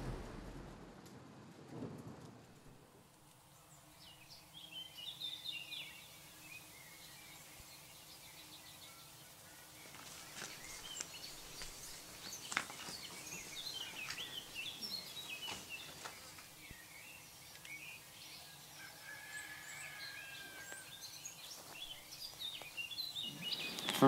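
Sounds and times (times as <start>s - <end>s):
birds chirping and calling: 4.0s - 24.0s.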